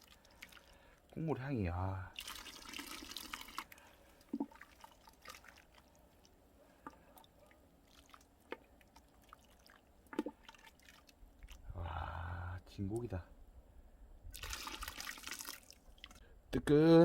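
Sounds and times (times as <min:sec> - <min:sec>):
faint drips: 0:00.0 - 0:01.2, 0:02.1 - 0:11.7, 0:14.3 - 0:16.3
broth pouring into a bowl: 0:02.1 - 0:05.9, 0:14.3 - 0:16.2.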